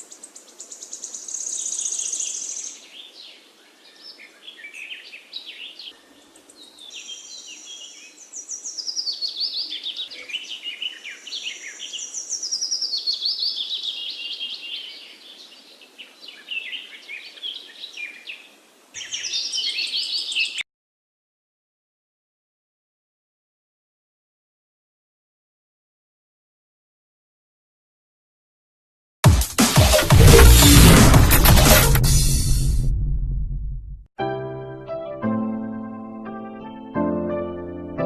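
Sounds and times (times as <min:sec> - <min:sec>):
small birds chirping and chattering: 0:00.0 - 0:20.6.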